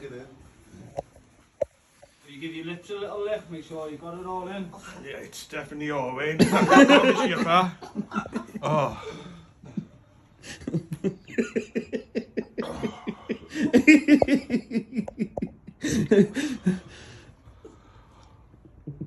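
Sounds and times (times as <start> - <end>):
men laughing: 6.4 - 9.8, 10.4 - 16.9
coughing: 11.4 - 16.8.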